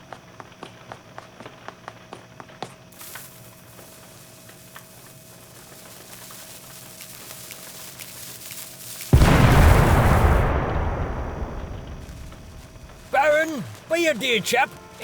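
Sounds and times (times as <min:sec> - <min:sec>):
fuse hiss: 0:02.9 - 0:14.6
explosion boom: 0:09.2 - 0:13.2.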